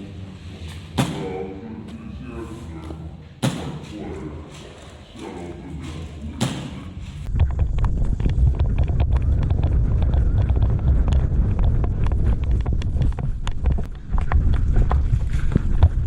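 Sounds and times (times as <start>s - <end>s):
wind rumble on microphone: 6.9s - 16.0s.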